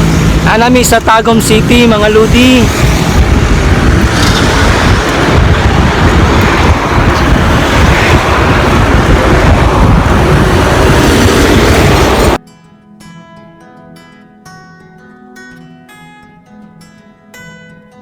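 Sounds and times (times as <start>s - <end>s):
passing traffic: 0.0s - 12.4s
wind buffeting microphone: 0.0s - 12.4s.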